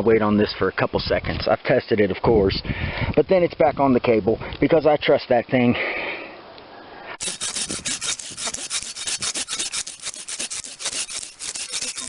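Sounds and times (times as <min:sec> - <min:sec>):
hand saw cutting branch: 0:07.2 - 0:12.0.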